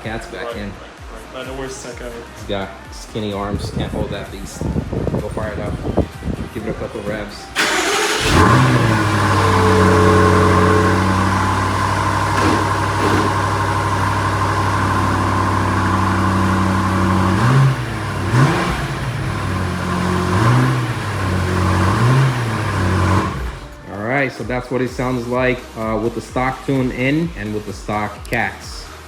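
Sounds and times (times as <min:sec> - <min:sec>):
car engine idling: 0:07.6 - 0:23.8
engine revving: 0:07.6 - 0:23.8.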